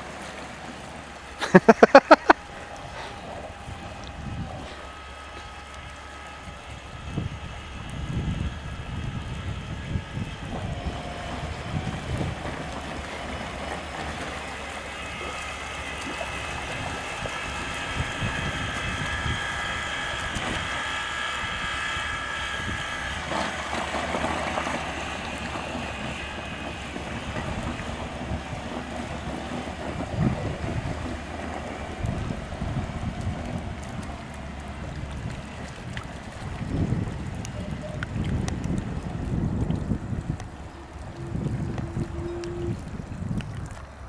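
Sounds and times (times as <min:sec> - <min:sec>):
electric outboard motor whining: 0:00.0 - 0:44.0
wind buffeting microphone: 0:02.0 - 0:44.0.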